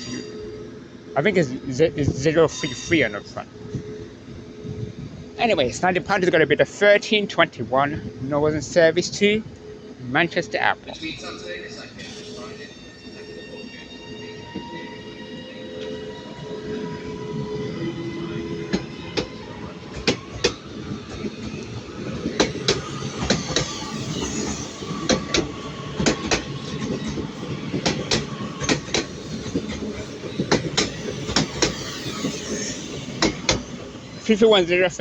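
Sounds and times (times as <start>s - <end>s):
train wheels clicking over rail joints: 15.7s - 34.4s.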